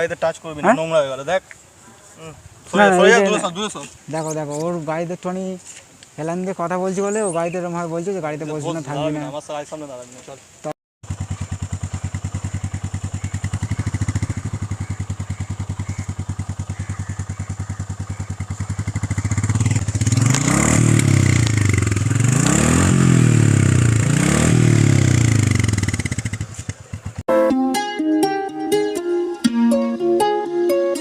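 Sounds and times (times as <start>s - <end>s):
motorcycle engine idling and revving: 11.0s - 27.3s.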